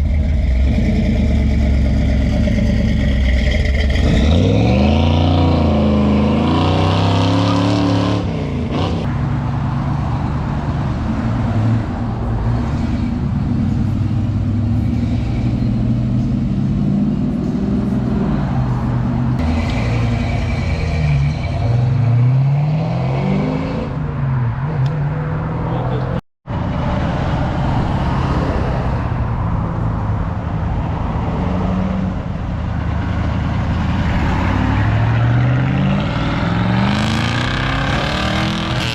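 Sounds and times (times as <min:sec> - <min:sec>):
car engines accelerating past: 0:30.8 - 0:38.9.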